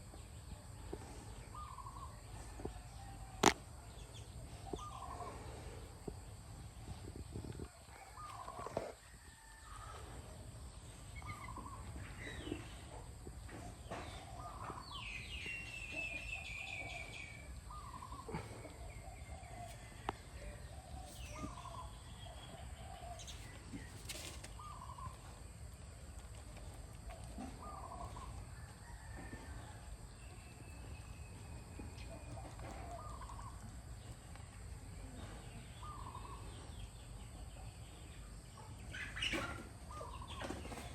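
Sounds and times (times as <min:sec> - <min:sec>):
birds calling: 0:13.6 - 0:25.3, 0:35.8 - 0:36.5.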